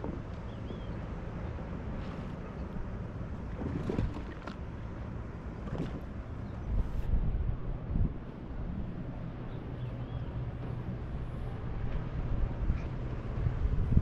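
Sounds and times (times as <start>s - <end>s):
water noise: 0.0s - 14.0s
wind: 0.0s - 14.0s
wind buffeting microphone: 5.7s - 14.0s.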